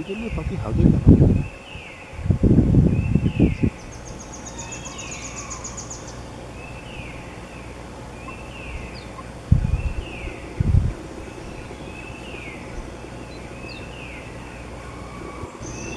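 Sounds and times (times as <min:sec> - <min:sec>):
low rumbles: 0:00.0 - 0:15.9.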